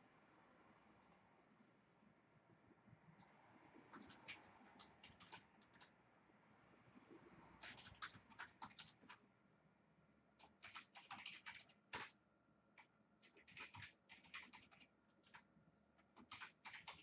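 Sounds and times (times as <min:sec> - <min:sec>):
faint keyboard typing: 0:01.0 - 0:01.3, 0:03.1 - 0:06.0, 0:07.2 - 0:09.3, 0:10.4 - 0:17.0.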